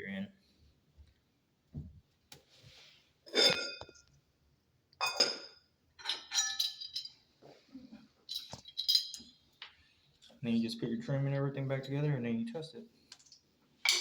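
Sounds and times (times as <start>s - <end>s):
small metal parts clinking: 6.0s - 7.2s, 8.3s - 9.4s.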